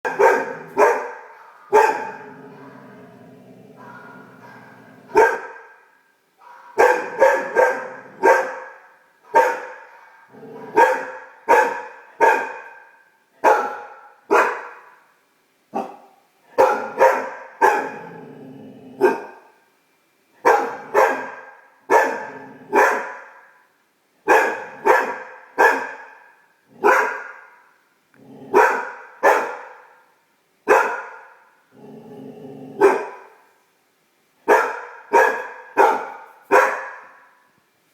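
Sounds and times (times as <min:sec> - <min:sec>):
puppy barking: 0:00.0 - 0:03.0, 0:03.8 - 0:05.8, 0:06.4 - 0:15.0, 0:15.7 - 0:18.1, 0:19.0 - 0:19.5, 0:20.4 - 0:23.6, 0:24.3 - 0:27.8, 0:28.5 - 0:30.1, 0:30.7 - 0:31.5, 0:32.8 - 0:33.4, 0:34.5 - 0:37.5.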